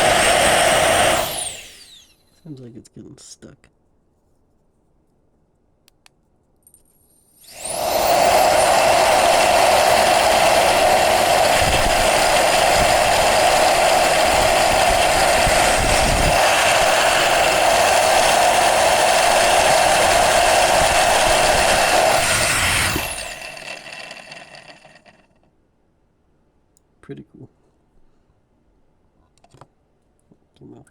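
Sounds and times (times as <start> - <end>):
jet fan rushing whine: 0.0 - 2.6, 7.4 - 25.2.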